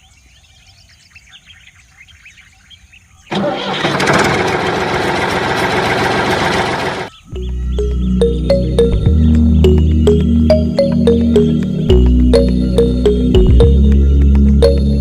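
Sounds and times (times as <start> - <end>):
birds chirping faintly: 0.0 - 3.3, 7.0 - 15.0
small engine running: 3.3 - 7.1.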